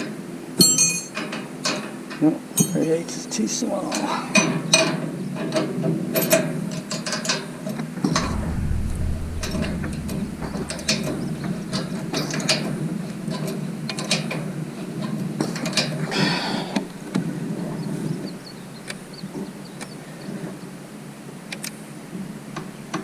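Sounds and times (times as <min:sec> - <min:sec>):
steady low hum: 0:08.1 - 0:13.4.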